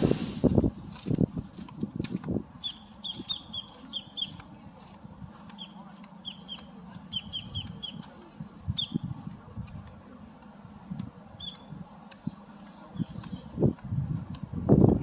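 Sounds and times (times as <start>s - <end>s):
footsteps on a paved path: 0.0s - 15.0s
small birds chirping: 2.6s - 4.5s, 5.4s - 9.1s, 11.4s - 13.7s.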